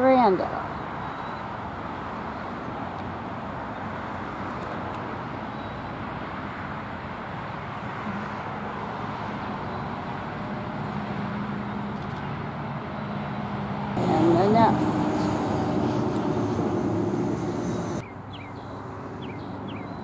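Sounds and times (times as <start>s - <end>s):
road traffic noise: 0.0s - 20.0s
low engine hum: 9.7s - 18.4s.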